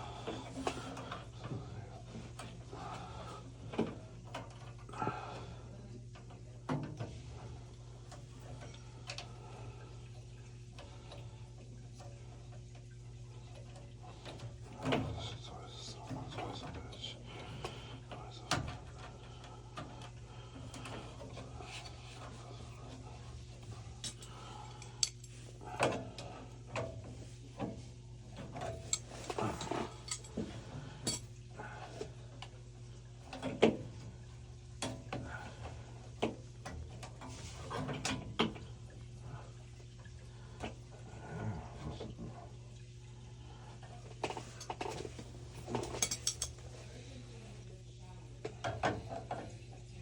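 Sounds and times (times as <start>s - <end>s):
steady low hum: 0.0s - 50.0s
metal parts and tools clinking: 28.8s - 30.3s, 31.1s - 31.3s, 45.9s - 46.6s.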